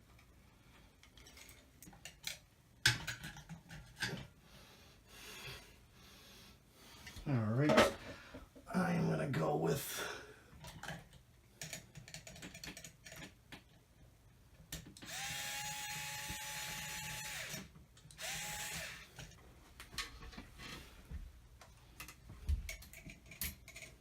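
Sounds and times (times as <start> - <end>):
cordless drill whining: 15.0 - 19.2.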